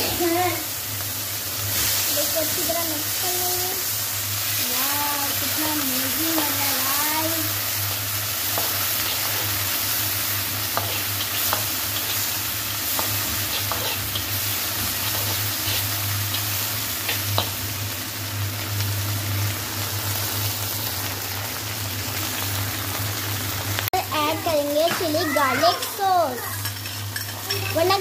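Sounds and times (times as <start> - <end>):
vegetables sizzling in a wok: 0.0 - 28.0
spatula scraping and tapping pan: 10.7 - 12.3, 12.9 - 14.4, 15.0 - 17.6.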